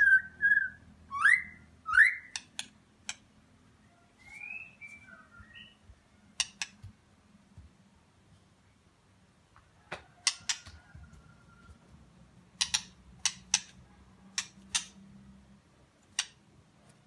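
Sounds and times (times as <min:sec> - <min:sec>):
faint thin bird whistle: 0:03.9 - 0:05.8.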